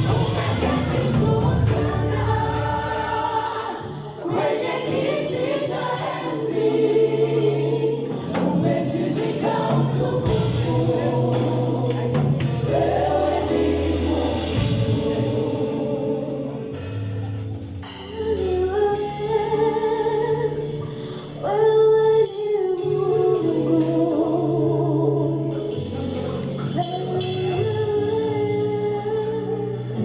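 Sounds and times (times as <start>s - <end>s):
drums and cymbal hits: 0.0s - 7.2s, 8.0s - 19.4s
choir singing: 0.0s - 17.2s
bass: 0.0s - 30.0s.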